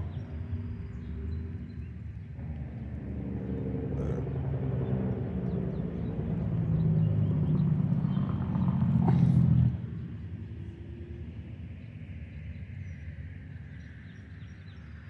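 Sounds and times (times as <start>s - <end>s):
engine running: 2.4s - 10.1s.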